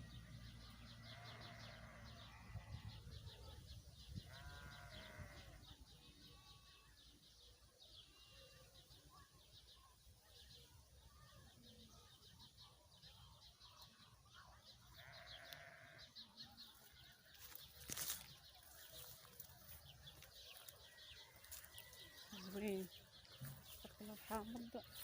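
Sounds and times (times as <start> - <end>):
livestock bleating: 0.8 - 3.2, 4.2 - 7.0, 14.9 - 16.4.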